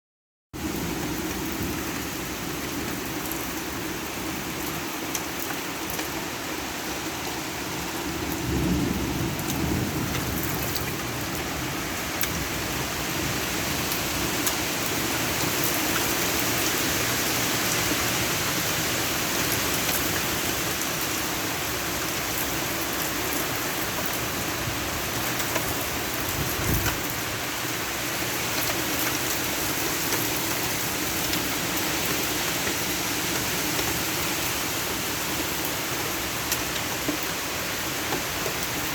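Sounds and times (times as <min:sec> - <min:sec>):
heavy rain pouring: 0:00.6 - 0:38.9
thunder rumbles: 0:08.0 - 0:13.3.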